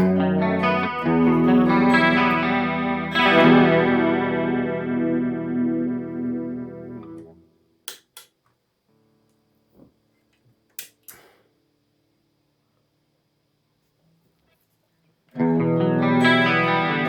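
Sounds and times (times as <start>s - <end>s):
electric guitar chord with chorus: 0.0s - 7.4s, 15.4s - 17.0s.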